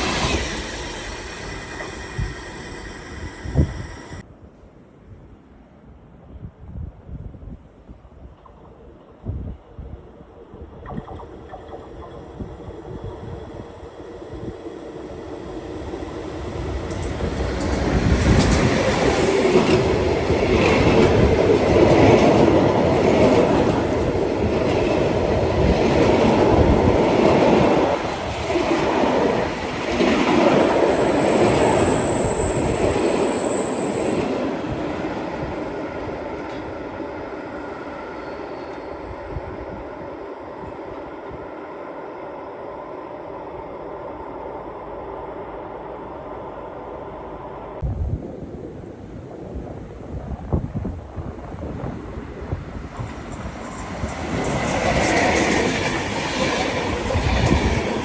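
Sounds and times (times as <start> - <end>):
train wheel squeal: 0.0 - 4.2, 16.7 - 21.3, 30.0 - 42.8, 53.3 - 58.0
train wheels rolling on rails: 0.0 - 4.2, 8.4 - 47.8, 51.0 - 58.0.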